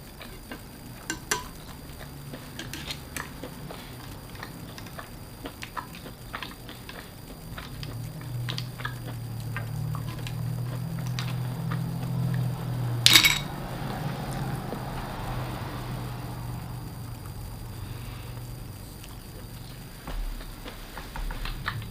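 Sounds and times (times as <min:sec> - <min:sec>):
dishes and utensils clicking: 0:01.0 - 0:03.4, 0:13.1 - 0:13.5.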